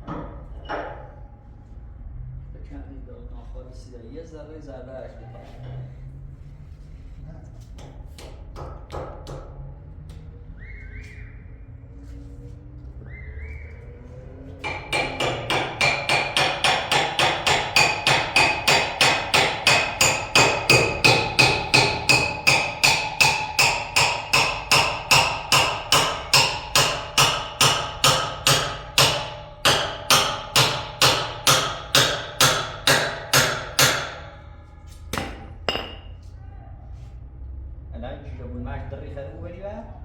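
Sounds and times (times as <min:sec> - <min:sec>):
hammering on metal: 0:07.8 - 0:09.6, 0:14.6 - 0:36.2.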